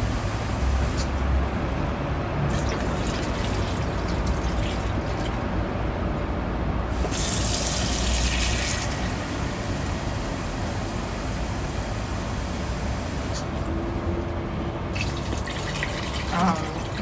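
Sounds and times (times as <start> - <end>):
water running into a tub: 2.5 - 5.7, 6.9 - 14.3, 14.9 - 17.0.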